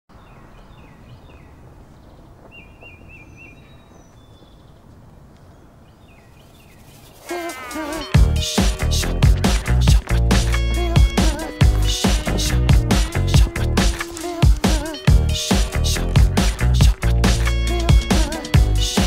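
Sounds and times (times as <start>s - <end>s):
small birds chirping: 0.1s - 19.0s
loud heavy music beat: 7.3s - 19.0s
wavering pitched music line: 7.3s - 19.0s.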